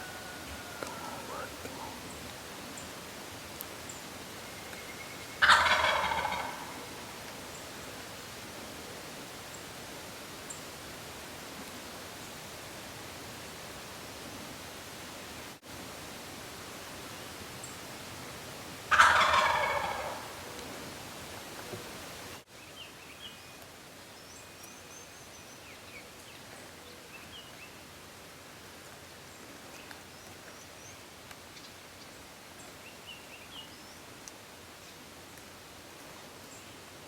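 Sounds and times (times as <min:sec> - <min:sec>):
turkey gobbling: 0:00.0 - 0:02.1, 0:05.4 - 0:07.2, 0:18.9 - 0:20.7
songbird chirps: 0:00.0 - 0:08.1, 0:21.6 - 0:28.0, 0:29.2 - 0:35.5.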